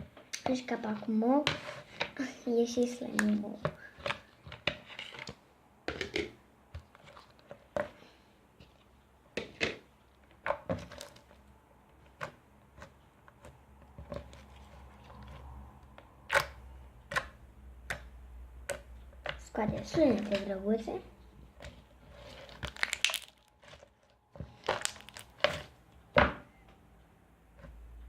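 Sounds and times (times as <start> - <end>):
slime squeezed by hand: 22.5 - 23.5, 24.5 - 25.5.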